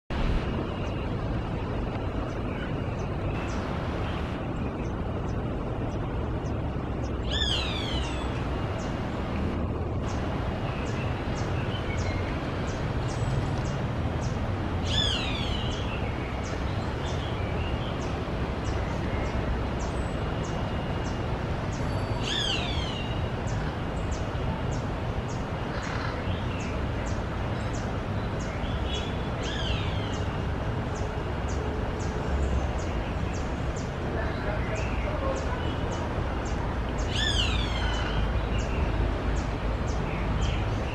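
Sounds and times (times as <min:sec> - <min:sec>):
steady low rumble: 0:00.1 - 0:21.9.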